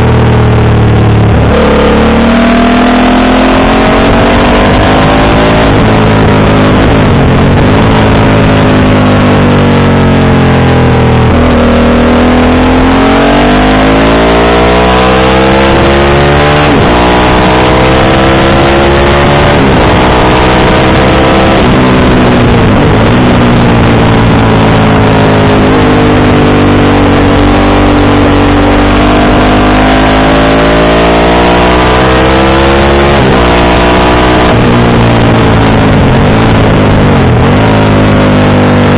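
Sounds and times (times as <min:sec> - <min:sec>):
motorcycle engine revving: 0:00.0 - 0:38.9
wind and road noise: 0:00.0 - 0:38.9.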